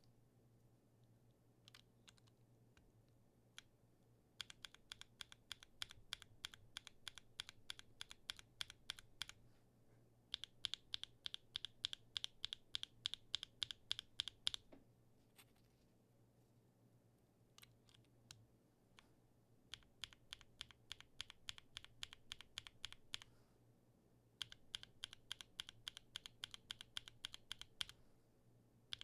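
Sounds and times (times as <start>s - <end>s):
mechanical keyboard typing: 4.4s - 9.4s, 10.3s - 14.7s, 19.7s - 23.3s, 24.4s - 28.0s.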